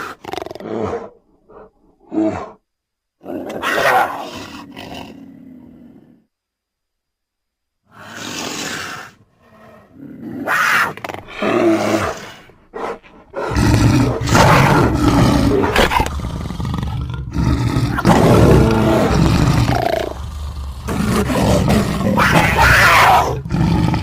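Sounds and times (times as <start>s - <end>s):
creature growling and roaring: 8.0s - 24.0s.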